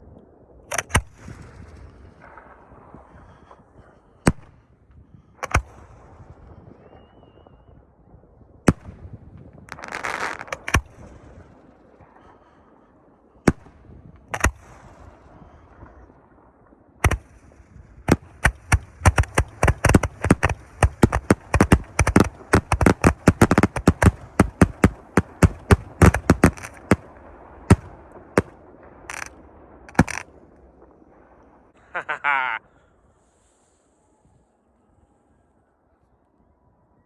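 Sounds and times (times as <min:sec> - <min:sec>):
fireworks bangs: 0:00.7 - 0:33.5
firework hiss: 0:09.7 - 0:10.7.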